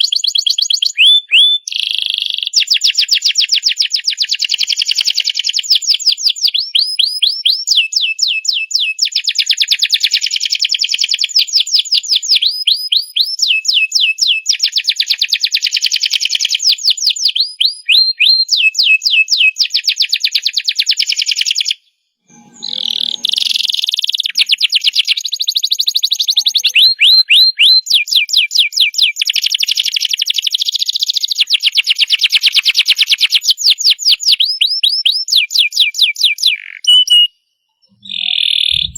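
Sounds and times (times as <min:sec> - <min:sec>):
canary singing trills: 0:21.0 - 0:31.3, 0:33.4 - 0:38.9.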